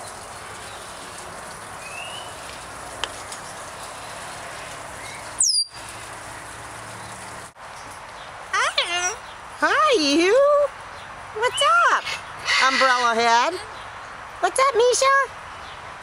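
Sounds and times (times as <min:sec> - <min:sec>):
parrots chirping: 0:11.4 - 0:13.5.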